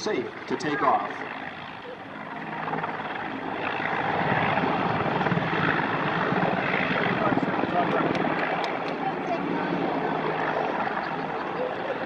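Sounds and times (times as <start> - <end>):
helicopter rotor chop: 0.0 - 12.0
turbine engines: 0.0 - 12.0.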